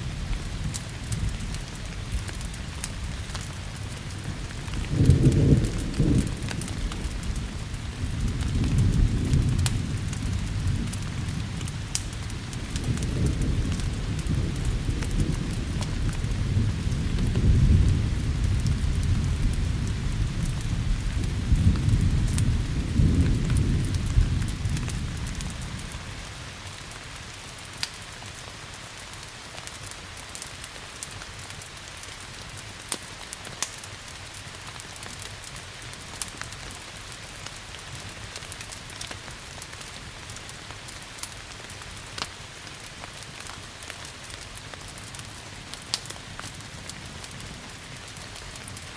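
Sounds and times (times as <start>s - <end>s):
thunder rumbling: 0.0s - 26.2s
steady rain: 0.0s - 48.9s
wood fire crackling: 0.0s - 48.9s.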